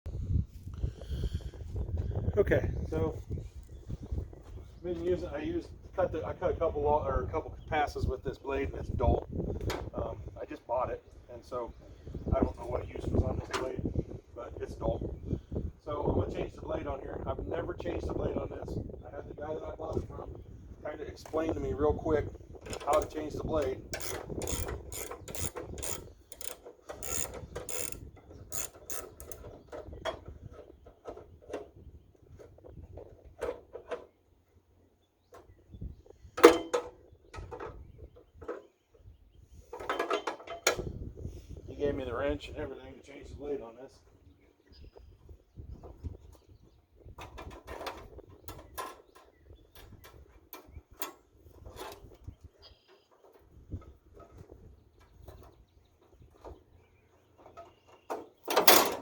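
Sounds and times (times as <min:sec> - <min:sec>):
metallic clicking and ratcheting tools: 0:23.9 - 0:29.4.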